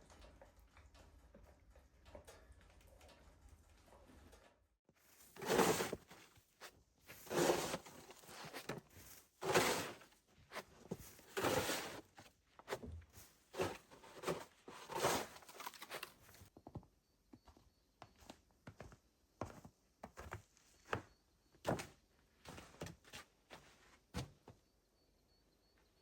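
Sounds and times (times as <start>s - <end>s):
footsteps crunching through snow: 5.1s - 12.0s.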